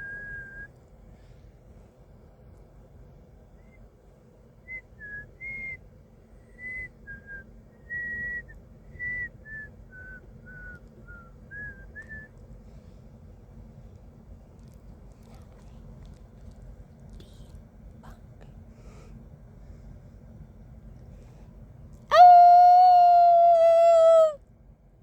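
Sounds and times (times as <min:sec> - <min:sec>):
man whistling: 0:00.0 - 0:00.7, 0:04.7 - 0:05.8, 0:06.5 - 0:12.3
low steady rumble: 0:00.0 - 0:25.0.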